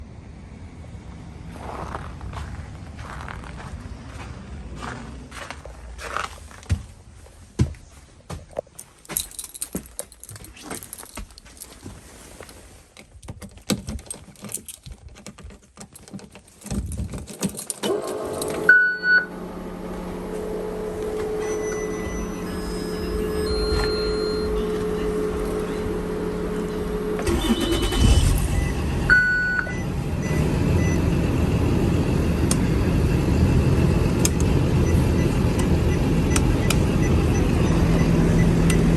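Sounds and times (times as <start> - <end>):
keys jangling: 8.8 - 11.8, 13.3 - 18.7
bus engine cranking and idling: 17.5 - 38.9
steady hum: 18.3 - 38.9
short beeps: 18.7 - 19.3, 21.3 - 25.9, 27.3 - 31.0.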